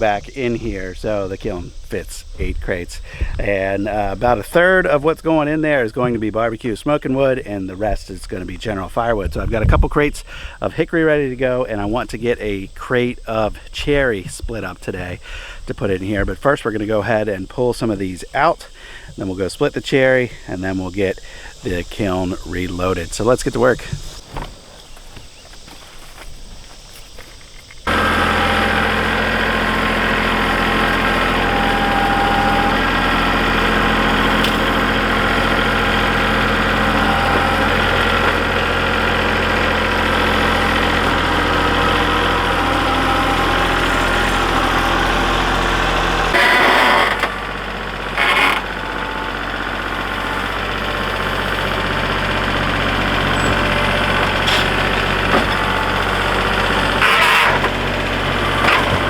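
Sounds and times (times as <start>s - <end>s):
engine running steadily: 27.8s - 59.0s
loud noisy bursts: 27.9s - 59.0s.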